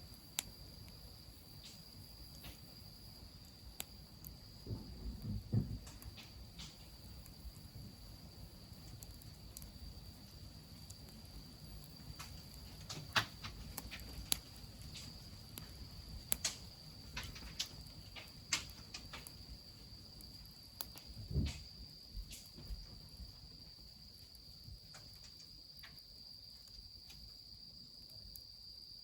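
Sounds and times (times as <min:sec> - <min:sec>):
high insect trill: 0:00.0 - 0:29.0
wood fire crackling and popping: 0:00.0 - 0:29.0
dull thump: 0:04.6 - 0:06.0.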